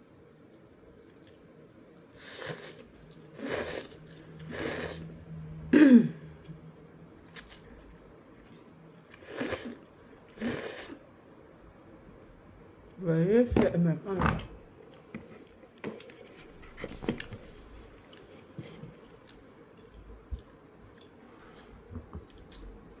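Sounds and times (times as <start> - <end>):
noodles being slurped: 2.2 - 5.0, 9.1 - 11.0.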